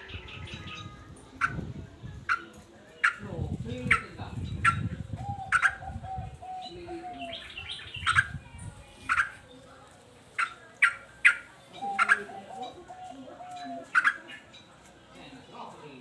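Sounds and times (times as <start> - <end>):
bird calling: 2.3 - 9.6, 10.3 - 14.7.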